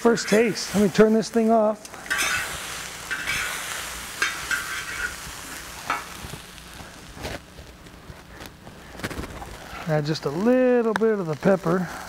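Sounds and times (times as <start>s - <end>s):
spatula scraping a pan: 0.0s - 0.9s, 2.1s - 6.2s
rice sizzling in a wok: 0.0s - 12.0s.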